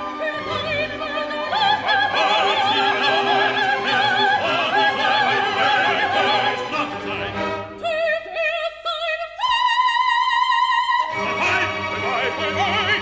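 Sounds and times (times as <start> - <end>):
orchestra playing: 0.0 - 7.8, 11.0 - 13.0
soprano singing with vibrato: 0.0 - 13.0
voices singing together: 0.4 - 7.9.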